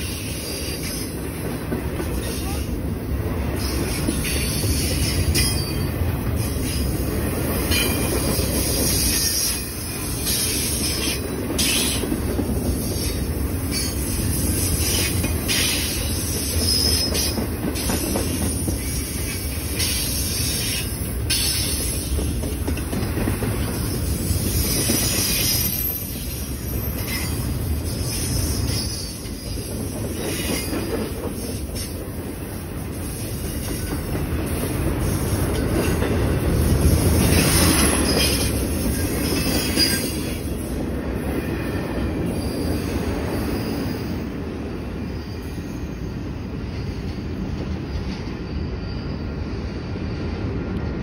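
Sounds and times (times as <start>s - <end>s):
freight train rumbling past: 0.0s - 51.0s
high-pitched wheel squeal: 42.3s - 44.2s, 48.2s - 50.4s.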